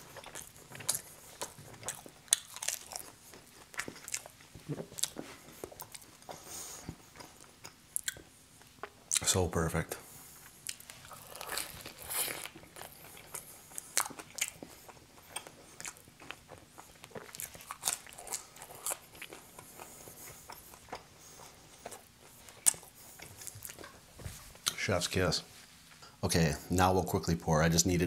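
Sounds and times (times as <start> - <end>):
crunchy biting and chewing: 0.0 - 8.3, 10.4 - 24.0.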